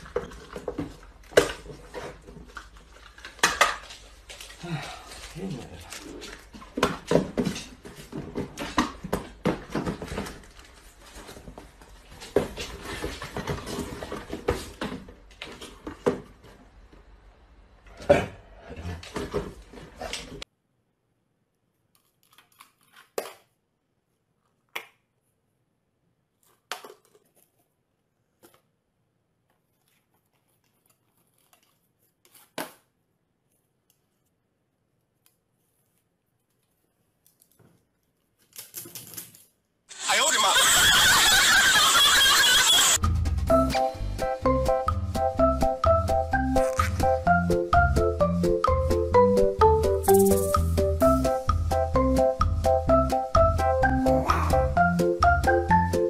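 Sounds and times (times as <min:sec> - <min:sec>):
cardboard boxes rustling and knocking: 0:06.4 - 0:16.6.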